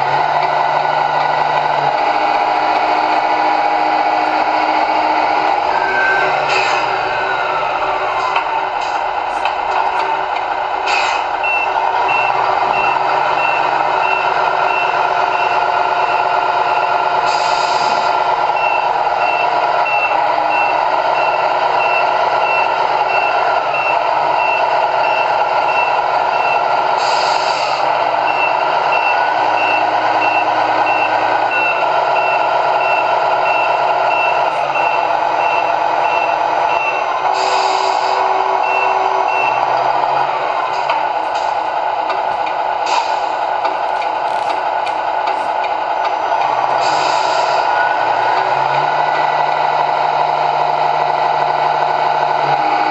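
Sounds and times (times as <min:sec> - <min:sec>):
model truck engine sound: 0:00.0 - 0:52.9
reversing beeper: 0:05.0 - 0:09.2, 0:10.9 - 0:41.8.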